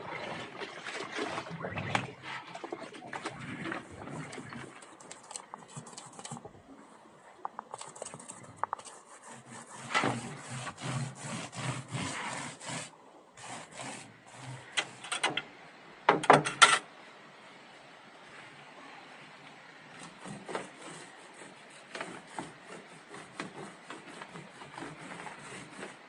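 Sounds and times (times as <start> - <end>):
scraping strokes: 1.2 - 6.5, 7.4 - 15.4, 20.0 - 26.0.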